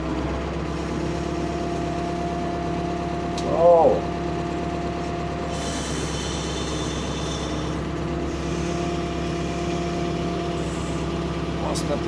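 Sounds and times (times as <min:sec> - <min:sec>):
excavator engine running: 0:00.0 - 0:12.0
hydraulic hiss and whine: 0:05.4 - 0:11.8.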